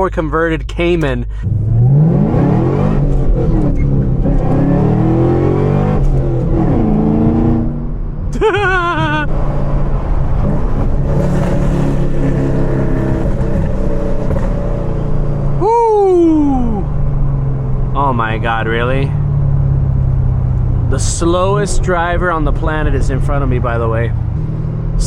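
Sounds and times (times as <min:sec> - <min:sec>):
sports car engine revving: 0:01.3 - 0:25.0
person whooping: 0:08.4 - 0:09.3, 0:15.6 - 0:16.9.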